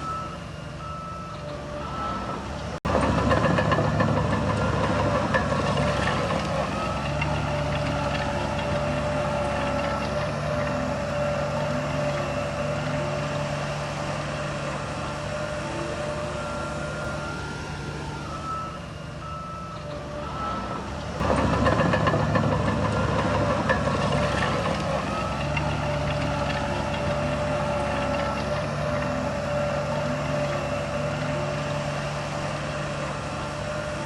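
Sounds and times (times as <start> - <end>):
heavy diesel engines running: 0.0 - 34.0
reversing alarm beeping: 0.0 - 34.0
loud clattering rattling noise: 2.9 - 10.2, 21.2 - 29.1.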